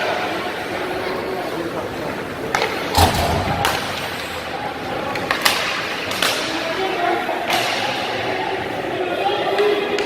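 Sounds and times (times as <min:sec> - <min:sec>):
arena crowd hubbub: 0:00.0 - 0:10.0
hockey stick and puck cracks: 0:05.1 - 0:06.6, 0:07.5 - 0:08.0.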